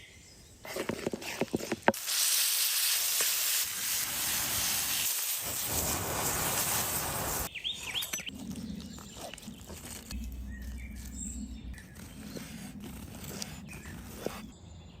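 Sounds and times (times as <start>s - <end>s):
food sizzling in frying: 1.9s - 7.5s
bird chirps: 7.5s - 15.0s.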